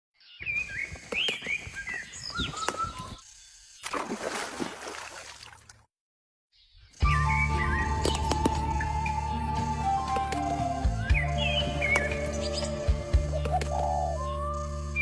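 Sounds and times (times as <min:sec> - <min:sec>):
small birds chirping: 0:00.2 - 0:04.0, 0:06.6 - 0:15.0
trickling water: 0:03.9 - 0:05.9.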